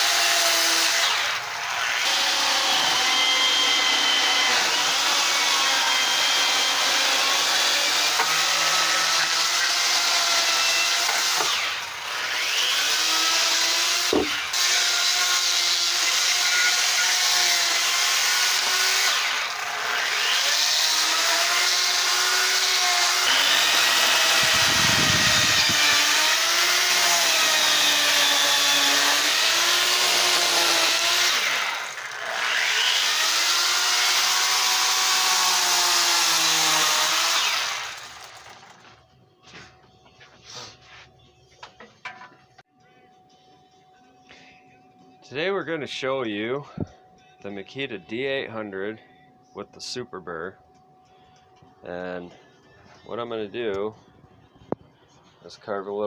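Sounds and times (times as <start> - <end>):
die grinder cutting wood: 0.0 - 38.8.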